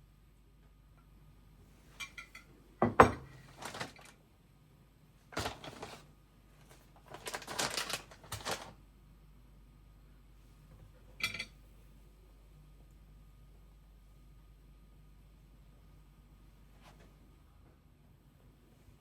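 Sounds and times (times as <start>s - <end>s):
objects clicking and clattering: 3.1s - 4.2s, 5.4s - 6.0s.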